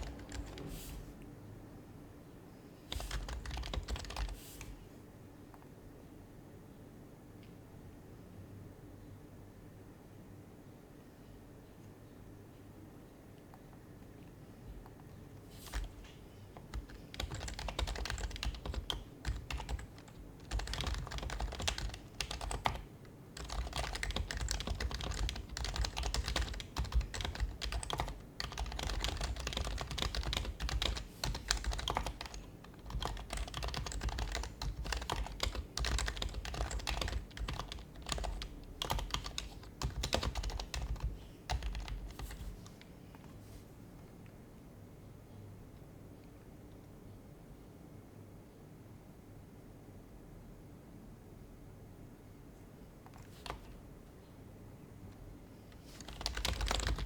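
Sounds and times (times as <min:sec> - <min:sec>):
soft keyboard typing: 0:00.0 - 0:01.0, 0:02.9 - 0:04.8, 0:13.4 - 0:43.4, 0:53.0 - 0:53.9, 0:55.1 - 0:57.0.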